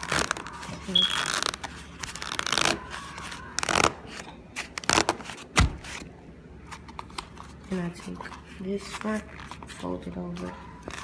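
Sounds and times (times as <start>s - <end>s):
cardboard box crinkling and scraping: 6.8s - 11.0s.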